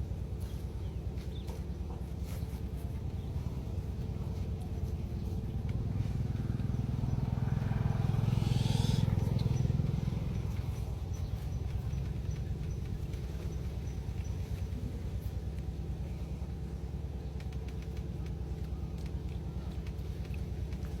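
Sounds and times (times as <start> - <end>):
engine running: 0.0 - 21.0.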